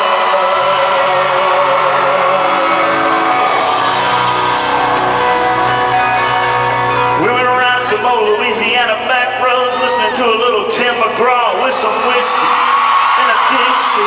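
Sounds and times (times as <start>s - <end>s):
crowd shouting: 0.0s - 7.2s
live country band playing: 0.0s - 14.0s.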